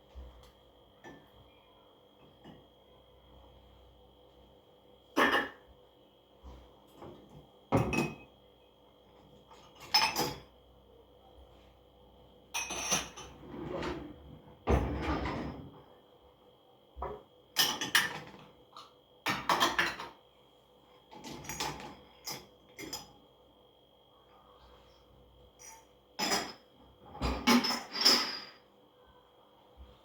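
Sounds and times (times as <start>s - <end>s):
dishes and pots clattering: 5.2s - 5.7s, 7.0s - 8.4s, 9.5s - 10.5s, 12.5s - 14.0s, 17.1s - 18.5s, 19.3s - 20.2s, 25.6s - 28.7s.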